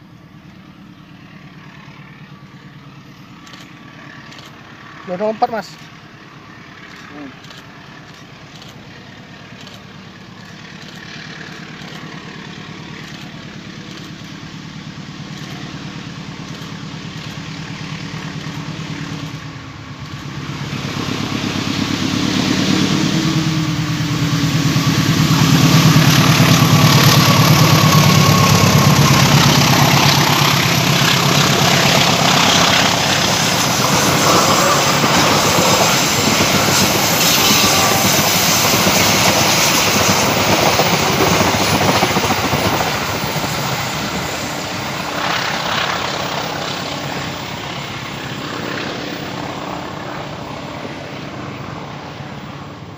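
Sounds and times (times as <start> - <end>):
diesel locomotive engine: 0.0 - 52.9
train wheels clattering on rails: 6.8 - 14.6, 15.2 - 23.0, 24.0 - 48.5.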